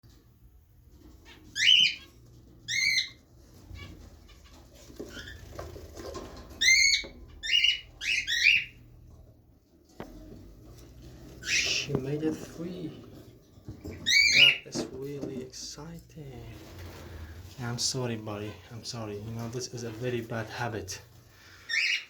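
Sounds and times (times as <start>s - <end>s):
cockatiel calling: 1.5s - 2.1s, 2.7s - 3.2s, 6.6s - 8.8s, 11.4s - 12.0s, 14.0s - 14.6s, 21.6s - 22.0s.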